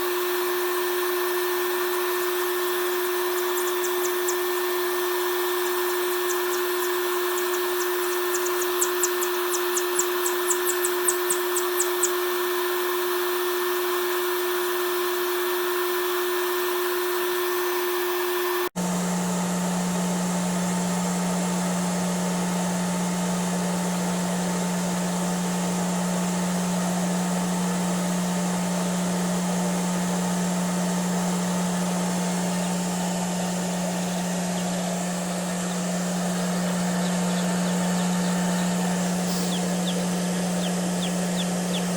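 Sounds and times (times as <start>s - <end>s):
hair dryer humming: 0.0s - 18.7s, 27.4s - 41.9s.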